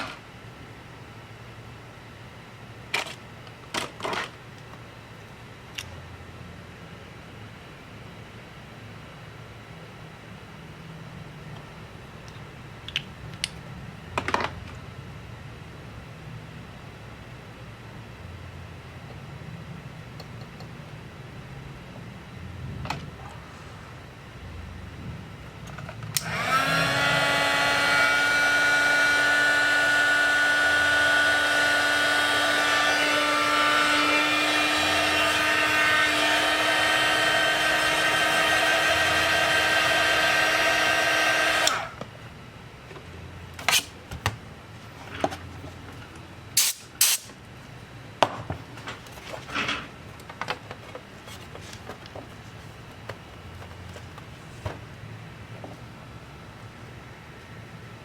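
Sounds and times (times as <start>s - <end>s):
electric tool motor whirring: 26.2s - 42.0s.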